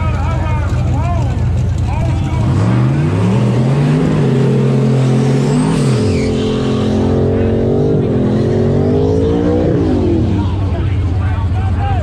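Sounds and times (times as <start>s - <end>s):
loud car engine revving: 0.0s - 12.0s.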